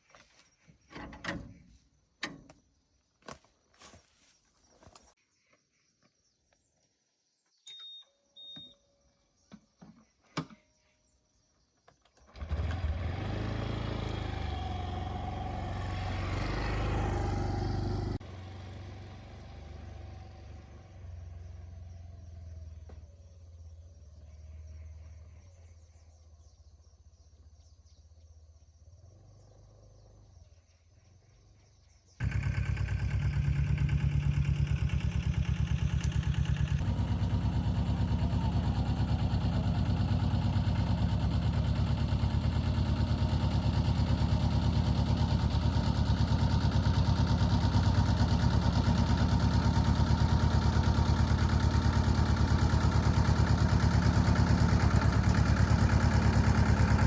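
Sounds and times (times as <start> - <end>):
vehicle engine running: 12.3 - 25.2, 32.2 - 57.0.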